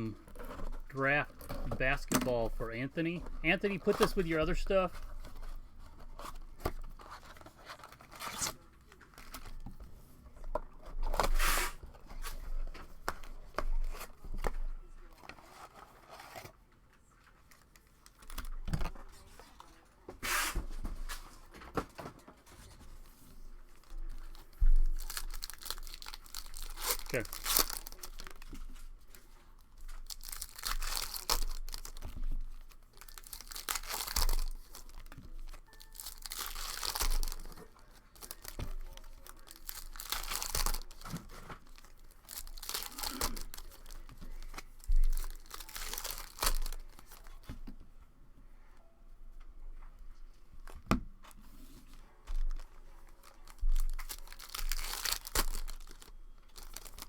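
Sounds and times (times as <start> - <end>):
plastic wrappers tearing and crinkling: 0.0 - 9.6, 23.7 - 47.5, 52.4 - 57.0.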